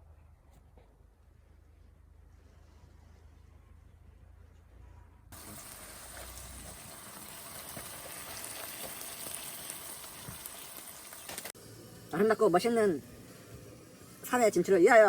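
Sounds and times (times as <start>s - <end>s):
food sizzling in a pan: 5.4s - 15.0s.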